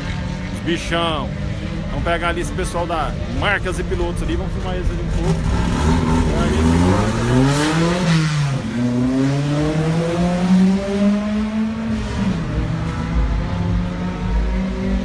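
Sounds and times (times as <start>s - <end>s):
race car engines accelerating: 0.0s - 15.0s.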